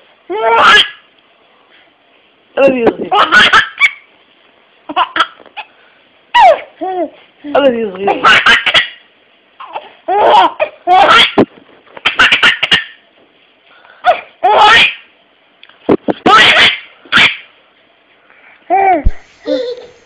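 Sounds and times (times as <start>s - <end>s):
baby laughing: 0.3s - 1.0s, 3.1s - 4.1s, 4.9s - 5.7s, 6.4s - 7.2s, 8.1s - 9.0s, 9.6s - 11.4s, 14.1s - 15.0s, 16.2s - 17.4s, 18.7s - 20.0s.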